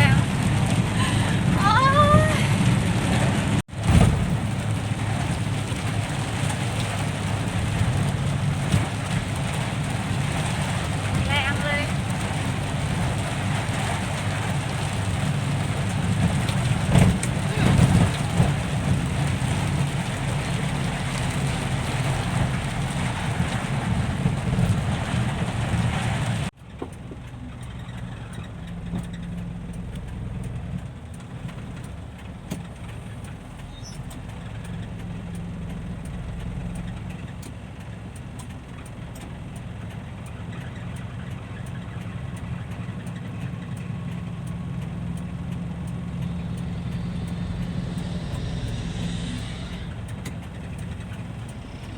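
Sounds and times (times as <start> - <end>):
diesel engine running: 0.0 - 51.9
loud hiss: 46.9 - 51.9.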